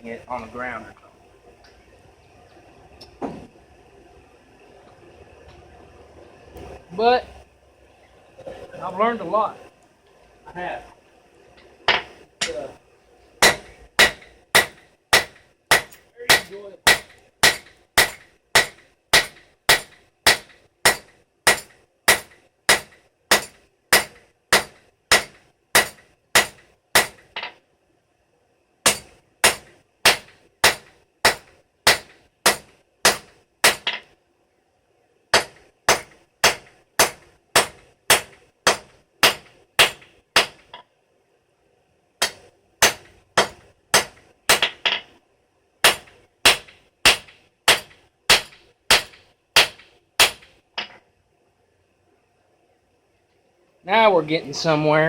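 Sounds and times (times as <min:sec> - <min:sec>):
hammer striking steel on anvil: 0:13.4 - 0:27.5, 0:28.9 - 0:34.1.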